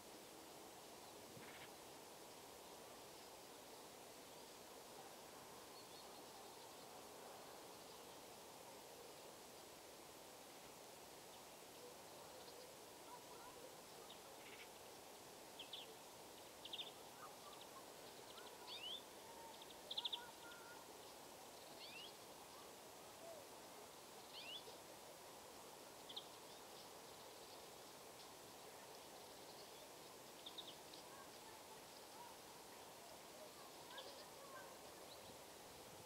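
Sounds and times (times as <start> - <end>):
steady low hiss: 0.0 - 36.0
small birds chirping: 11.2 - 23.4, 24.0 - 24.9, 25.9 - 35.6.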